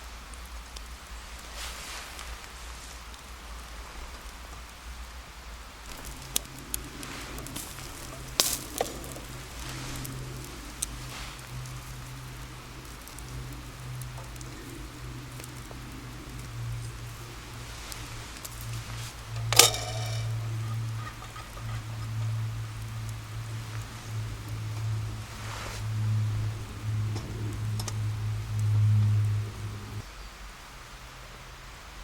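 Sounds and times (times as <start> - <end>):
fire crackling pops: 0.0 - 30.0
campfire hissing: 0.0 - 32.0
low steady hum: 5.6 - 30.1.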